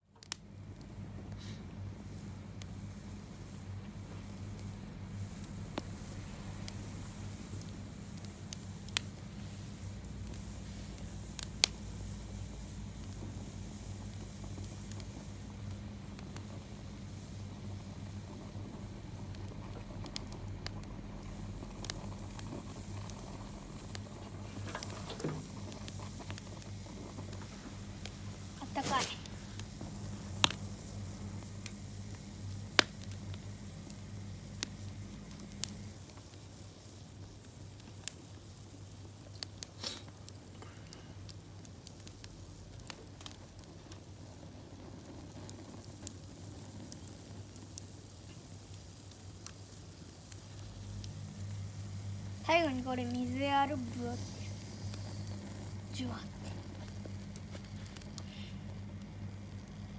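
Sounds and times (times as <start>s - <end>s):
campfire crackling and popping: 0.0s - 59.9s
low steady hum: 48.4s - 59.9s.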